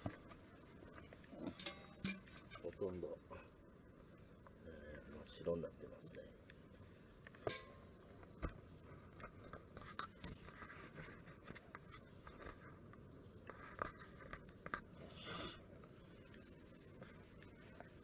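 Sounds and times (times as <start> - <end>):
light scratching: 6.8 - 18.0.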